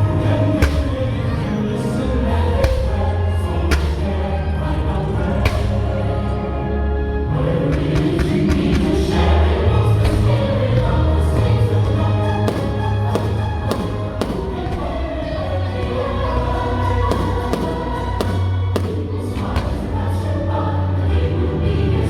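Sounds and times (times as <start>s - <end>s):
fireworks bursting: 0.0s - 6.4s, 7.8s - 20.3s
choral christmas music: 0.0s - 22.0s
deep bass: 0.0s - 22.0s.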